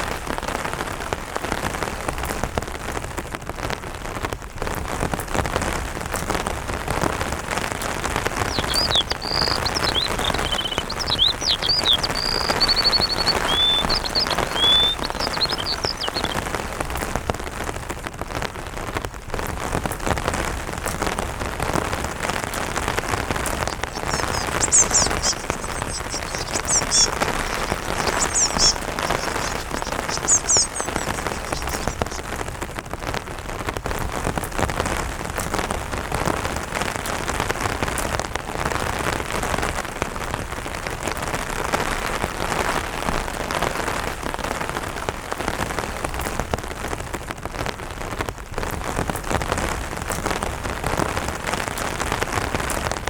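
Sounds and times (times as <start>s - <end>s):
rain falling on an umbrella: 0.0s - 53.0s
bird chirping: 8.3s - 16.6s, 22.9s - 32.3s.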